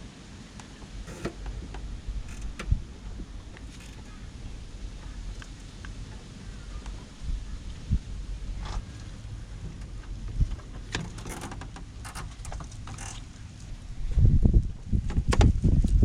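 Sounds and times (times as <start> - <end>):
low-pitched wind buffeting: 0.8 - 16.0
tools and parts clicking: 1.1 - 2.8, 10.9 - 13.3.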